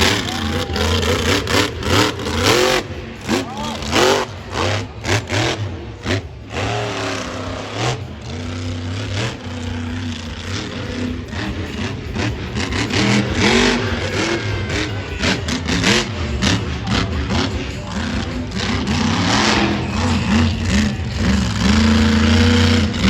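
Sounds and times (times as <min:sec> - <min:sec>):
monster truck engine revving: 0:00.0 - 0:23.0.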